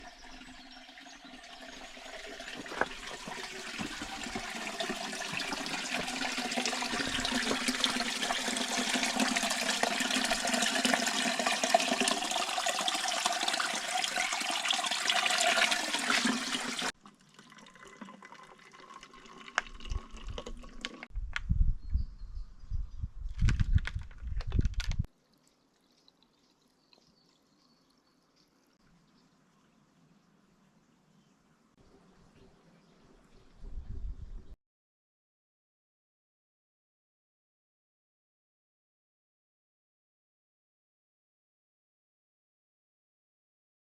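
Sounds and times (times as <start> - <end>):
water rushing and splashing: 1.6 - 16.9.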